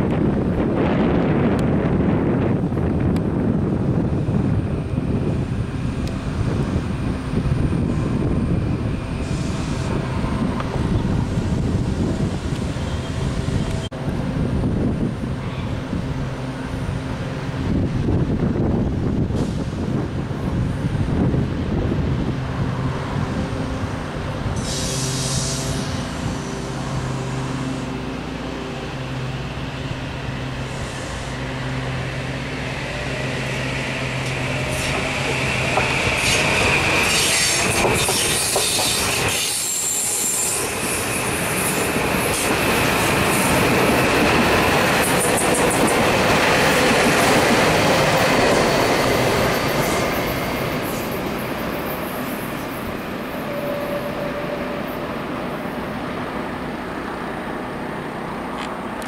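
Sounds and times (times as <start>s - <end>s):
high wheel squeal: 33.1s - 42.5s, 48.6s - 55.4s.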